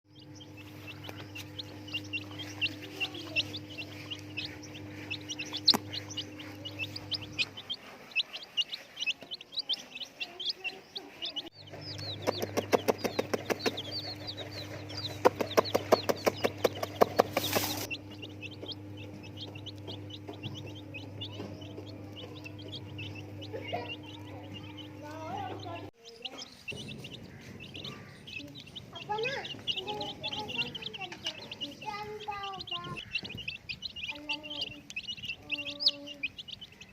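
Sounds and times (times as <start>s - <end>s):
chicks peeping: 0.1s - 36.9s
steady low hum: 0.1s - 36.9s
sharp clicks or taps: 12.0s - 13.9s.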